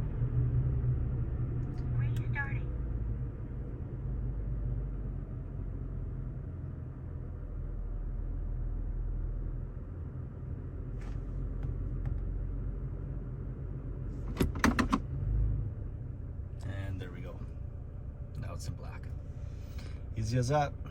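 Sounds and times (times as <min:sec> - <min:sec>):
pickup engine idling: 0:15.8 - 0:20.9.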